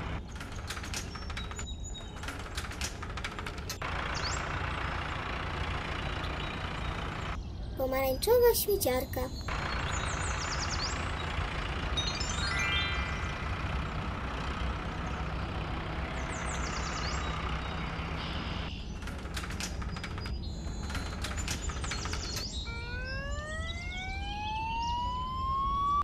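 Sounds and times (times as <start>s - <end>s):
cartoon truck engine rumble: 0.0s - 26.0s
siren rising in pitch: 22.5s - 26.0s.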